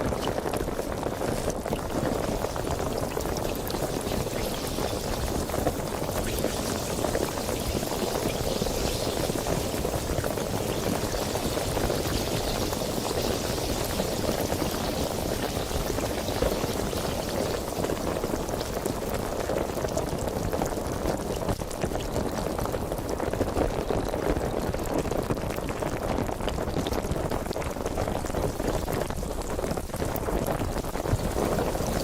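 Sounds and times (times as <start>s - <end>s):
sparkling water fizzing: 0.1s - 20.3s, 30.8s - 32.0s.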